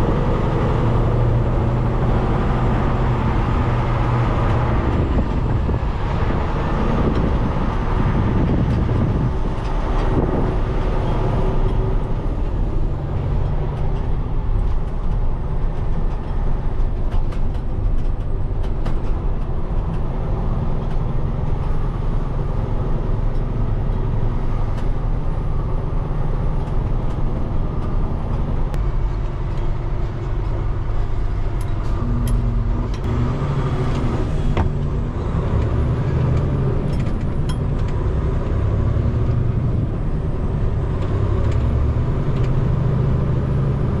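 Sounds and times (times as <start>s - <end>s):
diesel truck engine rumble: 0.0s - 44.0s.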